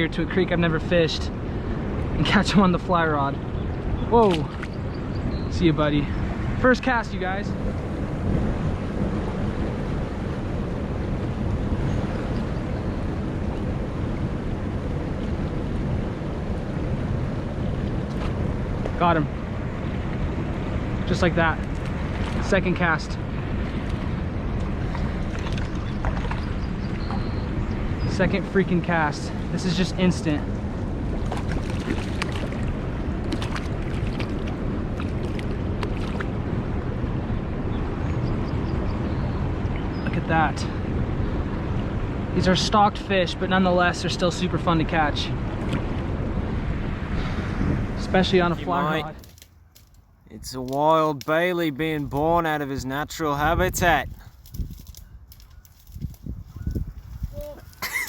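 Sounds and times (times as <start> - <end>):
wind rumble on microphone: 0.0 - 48.5, 53.5 - 57.8
sharp clicks and splashes: 24.6 - 26.5, 31.2 - 36.4.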